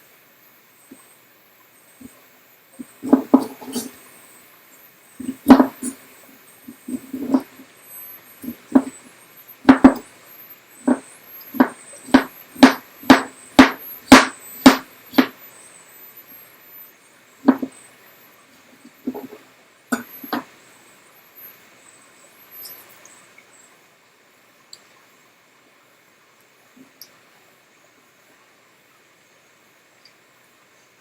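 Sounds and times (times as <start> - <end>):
knife chopping on cutting board: 9.7 - 10.0, 11.6 - 15.3.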